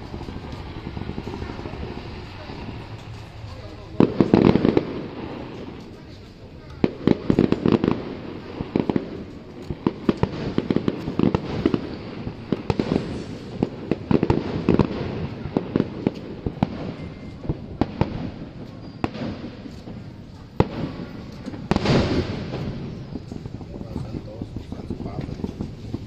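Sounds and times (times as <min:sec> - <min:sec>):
fireworks bangs and crackling pops: 0:00.0 - 0:26.0.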